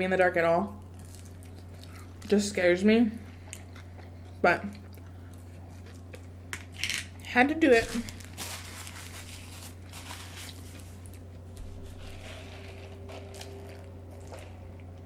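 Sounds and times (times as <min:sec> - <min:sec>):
low electrical hum: 0:00.0 - 0:15.0
faint crinkling: 0:07.7 - 0:15.0.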